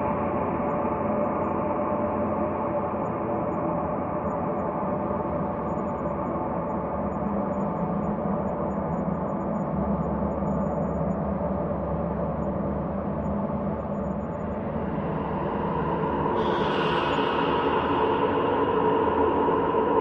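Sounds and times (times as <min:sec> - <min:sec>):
ambient drone: 0:12.4 - 0:20.0.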